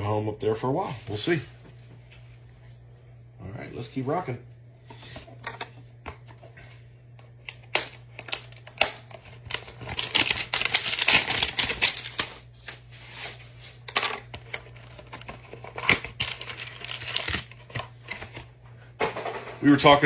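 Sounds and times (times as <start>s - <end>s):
cards clicking and scraping: 7.4s - 18.5s
plastic wrap rustling: 7.8s - 13.8s, 14.6s - 18.4s.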